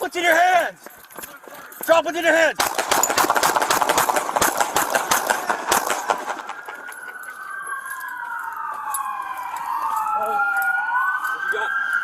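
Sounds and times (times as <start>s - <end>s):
sharp knocks and cracks: 2.6s - 6.9s
police siren wailing: 5.2s - 12.0s.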